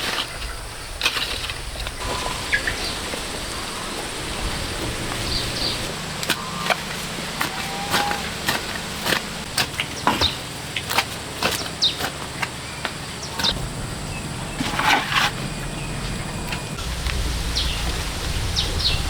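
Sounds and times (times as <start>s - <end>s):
steady hiss: 1.5s - 9.6s, 16.6s - 19.0s.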